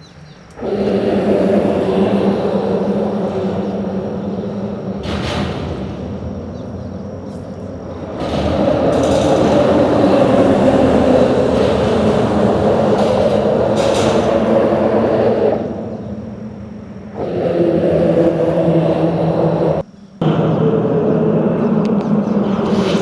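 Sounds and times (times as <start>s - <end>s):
low engine hum: 0.0s - 23.0s
vehicles crossing a bridge: 0.0s - 23.0s.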